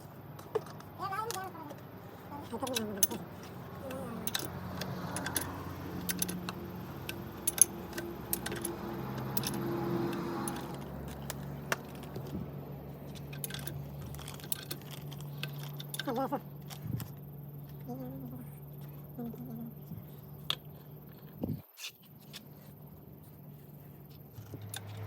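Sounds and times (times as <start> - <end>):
low steady hum: 0.0 - 25.0
metal tools clinking: 2.4 - 12.3, 13.0 - 16.9.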